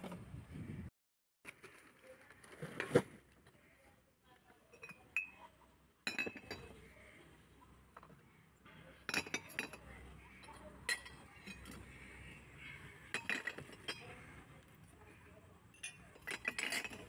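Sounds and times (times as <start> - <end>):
glass objects clinking: 4.7 - 5.4, 6.1 - 6.8, 9.1 - 9.9, 13.1 - 14.1, 15.8 - 17.0.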